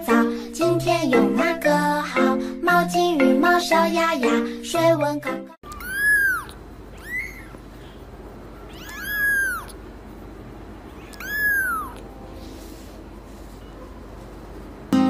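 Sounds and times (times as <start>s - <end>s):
kitten mewing: 5.6s - 8.0s, 8.6s - 9.8s, 10.9s - 12.1s.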